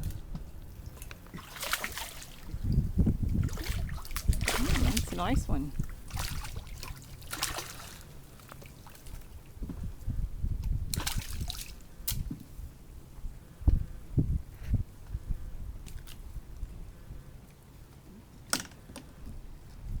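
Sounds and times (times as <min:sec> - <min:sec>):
water splashing beside kayak: 0:00.7 - 0:09.8, 0:10.8 - 0:12.3.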